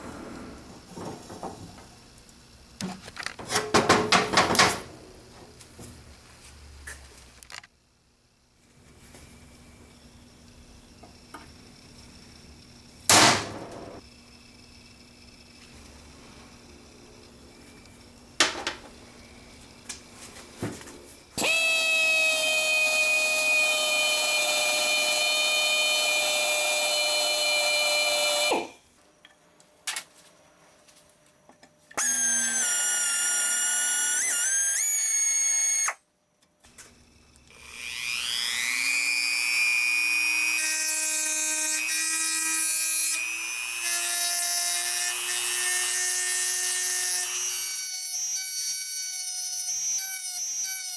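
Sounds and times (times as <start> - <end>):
power tool motor whine: 21.4 - 28.8, 32.0 - 36.0, 37.5 - 44.4.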